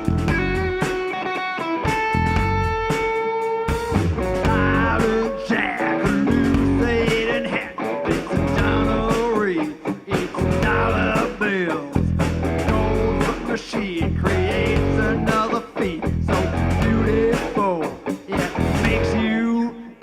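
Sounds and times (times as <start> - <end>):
electric guitar solo: 0.0 - 10.1
drum hits: 1.9 - 5.4.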